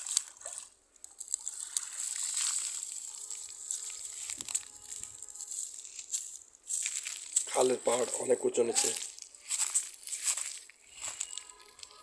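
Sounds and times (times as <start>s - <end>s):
water splashing and sloshing: 0.0s - 8.1s.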